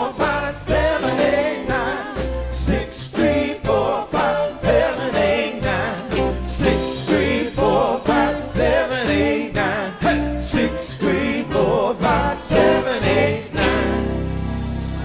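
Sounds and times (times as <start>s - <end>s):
live soul band playing: 0.0s - 15.0s
drums beating: 2.7s - 10.8s.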